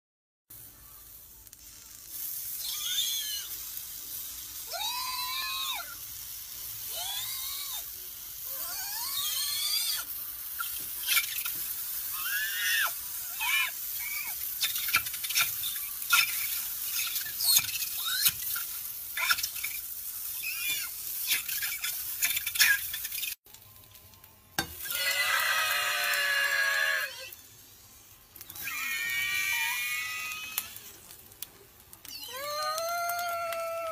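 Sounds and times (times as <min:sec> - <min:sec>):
dough balls sizzling in a pan: 0:00.5 - 0:33.9
harsh scream-like squeal: 0:02.5 - 0:03.6, 0:04.7 - 0:06.0, 0:06.9 - 0:11.5, 0:12.1 - 0:18.6, 0:20.3 - 0:21.9, 0:24.8 - 0:27.4, 0:28.4 - 0:31.0
squeals rising and falling in pitch: 0:28.4 - 0:30.9.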